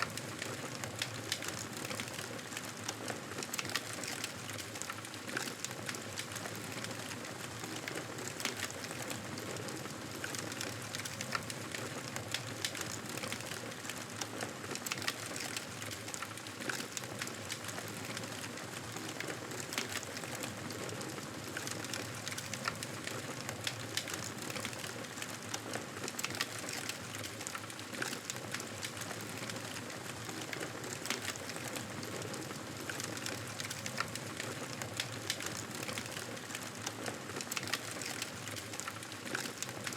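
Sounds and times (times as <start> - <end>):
campfire crackling and popping: 21.5 - 25.2.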